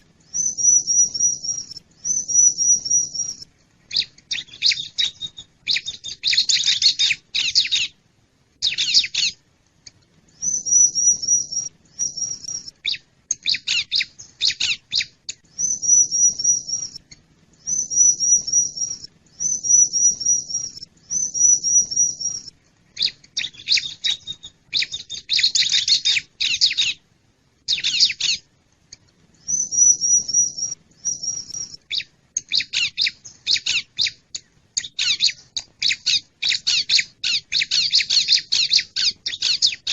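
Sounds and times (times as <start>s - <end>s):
bird calling: 0.0s - 8.0s, 8.6s - 9.4s, 10.4s - 17.0s, 17.6s - 27.0s, 27.7s - 28.5s, 34.8s - 39.9s.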